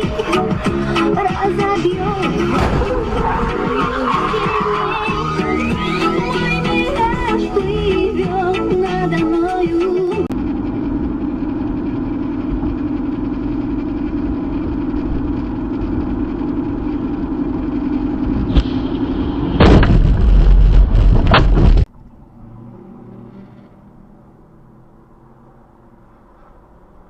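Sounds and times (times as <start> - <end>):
road noise: 0.0 - 27.0
vehicle humming: 0.0 - 27.0
loud crash-like impact: 2.5 - 3.6, 18.5 - 21.9.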